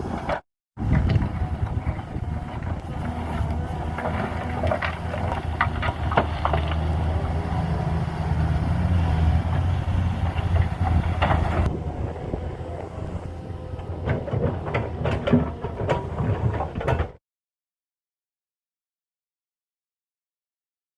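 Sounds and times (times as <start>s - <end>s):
knocks and rattles: 0.0s - 7.0s, 9.4s - 11.7s, 13.8s - 17.2s
engine running with low hum: 0.0s - 17.2s.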